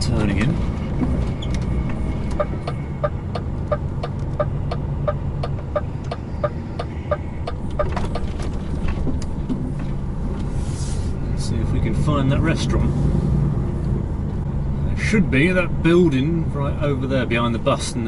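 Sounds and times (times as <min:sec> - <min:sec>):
diesel engine running: 0:00.0 - 0:18.0
turn signal ticking: 0:00.3 - 0:09.6.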